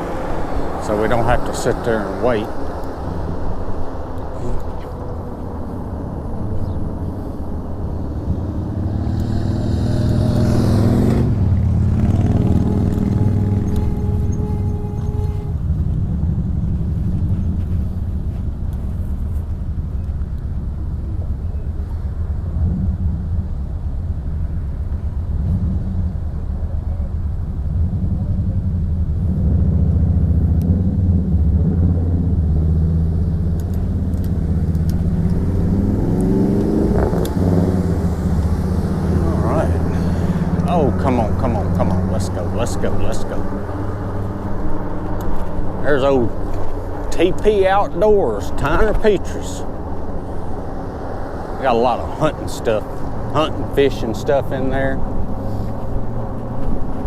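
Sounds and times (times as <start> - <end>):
rising tone: 0.0 - 18.0, 29.3 - 57.0
low traffic rumble: 0.0 - 57.0
vehicle engine accelerating: 0.0 - 57.0
wind on microphone: 27.7 - 40.7.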